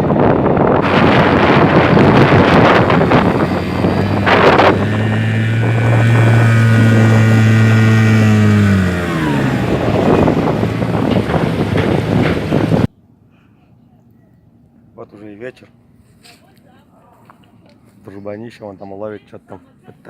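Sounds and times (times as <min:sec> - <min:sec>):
wind on microphone: 0:00.0 - 0:12.9
outboard motor running: 0:00.4 - 0:12.9.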